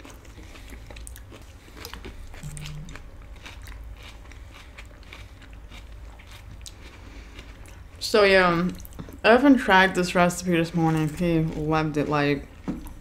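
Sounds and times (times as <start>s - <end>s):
chewing and crunching food: 0.0s - 13.0s
short low hum: 2.3s - 3.4s
wet mouth clicks: 2.4s - 3.0s.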